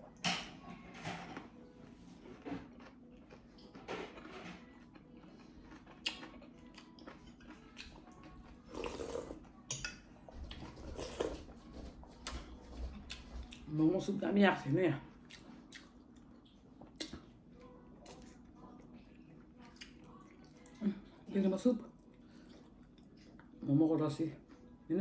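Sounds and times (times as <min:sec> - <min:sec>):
chewing and slurping: 0:02.8 - 0:09.6, 0:10.5 - 0:11.6.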